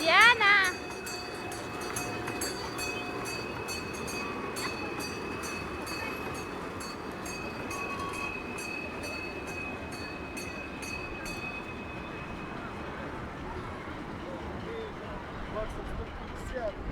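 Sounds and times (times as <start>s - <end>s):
train ride rumble: 0.0s - 16.9s
wheels clicking on rail joints: 0.0s - 16.9s.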